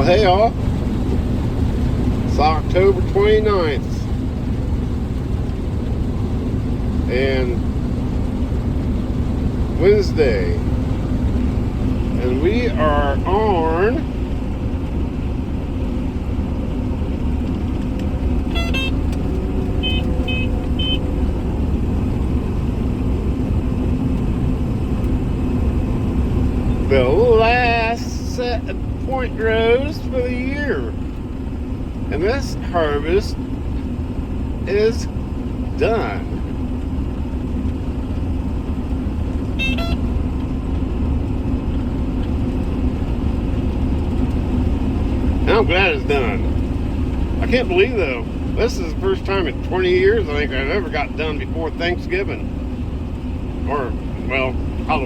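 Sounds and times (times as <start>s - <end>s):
combine harvester rumbling: 0.0s - 55.0s
short electronic beeps: 18.5s - 19.0s, 39.6s - 40.0s.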